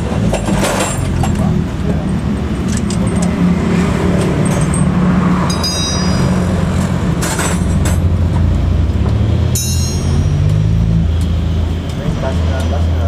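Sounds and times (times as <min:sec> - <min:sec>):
truck engine running: 0:00.0 - 0:13.0
ringing metallic clink: 0:05.5 - 0:06.6, 0:09.5 - 0:10.8.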